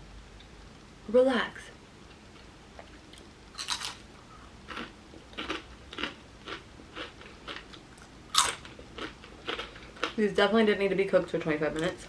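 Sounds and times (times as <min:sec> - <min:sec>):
person chewing crunchy food: 0:02.8 - 0:10.2.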